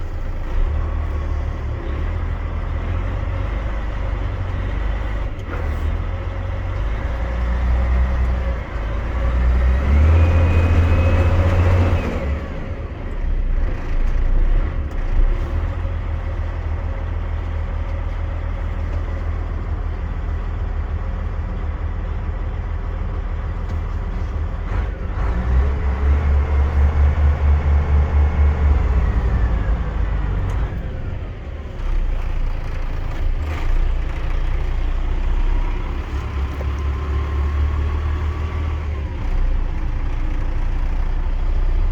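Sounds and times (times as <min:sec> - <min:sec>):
truck diesel engine revving: 0:00.0 - 0:41.9
engine whine: 0:16.9 - 0:41.9.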